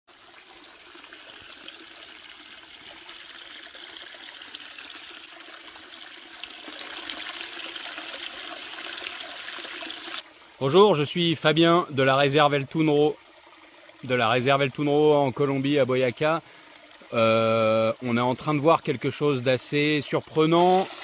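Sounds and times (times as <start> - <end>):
running water rushing: 0.1 - 21.0.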